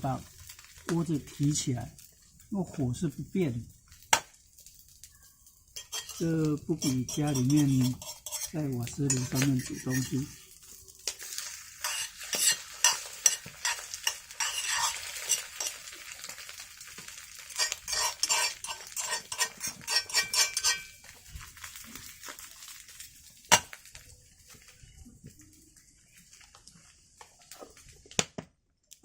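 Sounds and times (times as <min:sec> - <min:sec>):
food sizzling: 0:00.0 - 0:28.4
utensil scraping in a pan: 0:05.6 - 0:25.1.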